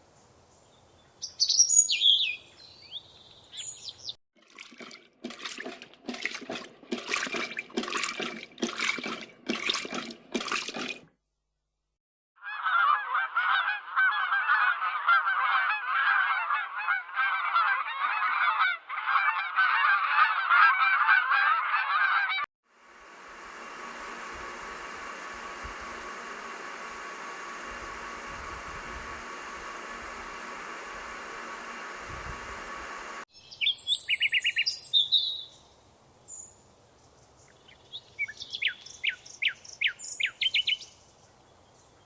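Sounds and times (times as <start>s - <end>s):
birds honking: 1.1s - 4.2s, 12.4s - 22.4s
chorus of birds calling: 1.2s - 4.2s, 33.4s - 35.7s, 37.4s - 42.0s.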